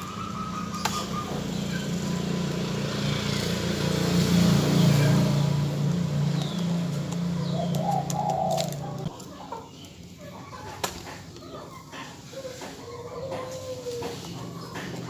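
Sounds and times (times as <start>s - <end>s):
vehicle engine passing by: 0.0s - 9.2s.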